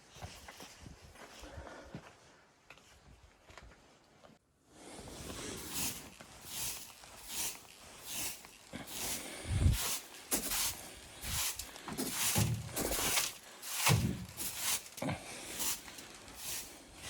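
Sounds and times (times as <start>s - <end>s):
footsteps crunching in snow: 5.0s - 17.0s.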